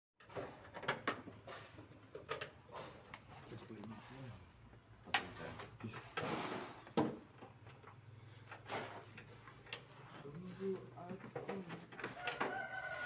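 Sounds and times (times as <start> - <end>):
sharp knocks and clanks: 5.0 - 9.8, 10.8 - 12.7.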